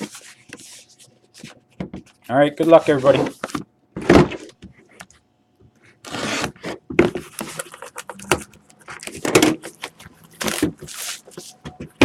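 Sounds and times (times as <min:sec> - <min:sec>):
packaging rustling and scraping: 0:06.0 - 0:08.2, 0:08.8 - 0:11.7.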